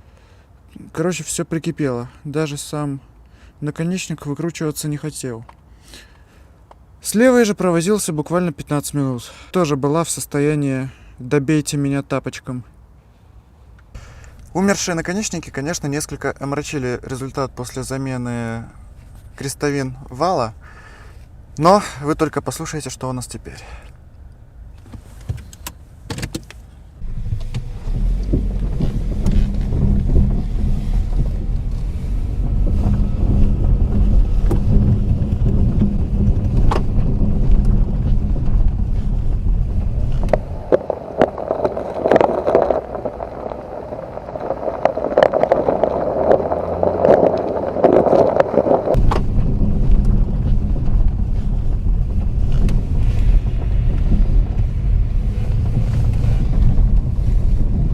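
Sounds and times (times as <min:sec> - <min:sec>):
tyre and suspension rumble: 0:26.8 - 0:57.9.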